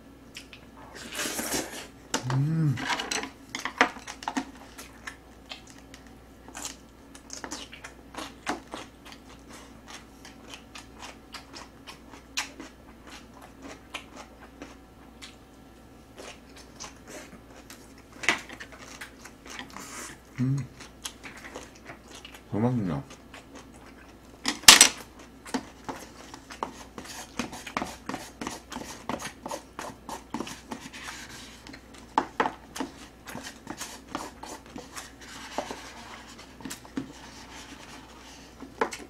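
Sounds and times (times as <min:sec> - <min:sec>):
chewing and crunching: 0:03.5 - 0:15.5, 0:16.1 - 0:35.2.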